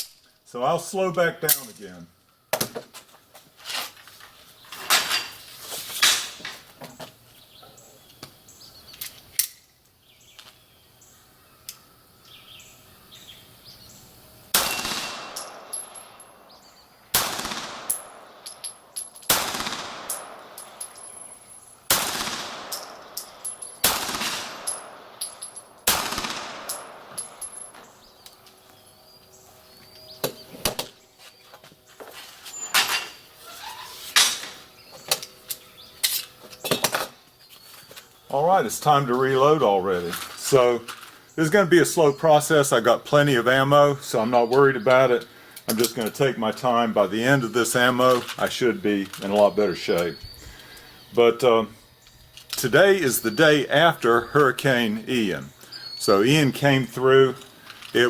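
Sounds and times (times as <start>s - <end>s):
pistol shots: 14.5s - 16.3s, 17.1s - 18.6s, 19.3s - 21.0s, 21.9s - 25.2s, 25.8s - 27.9s.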